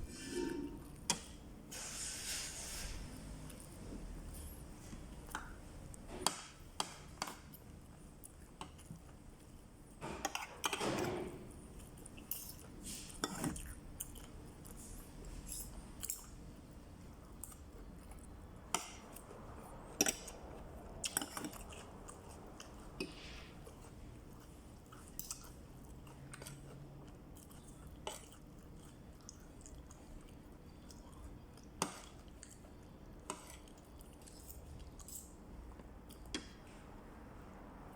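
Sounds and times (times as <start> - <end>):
person chewing: 11.7 - 16.3, 17.1 - 36.4.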